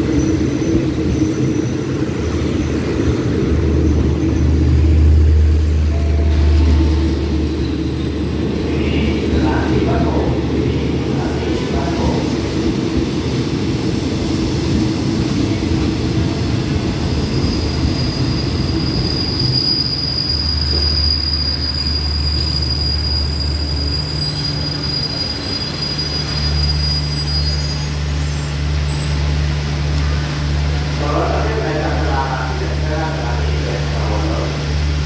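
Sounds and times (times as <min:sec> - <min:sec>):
low train hum: 0:00.0 - 0:35.0
train coaches rolling slowly: 0:00.0 - 0:35.0
high brake squeal: 0:17.1 - 0:29.4.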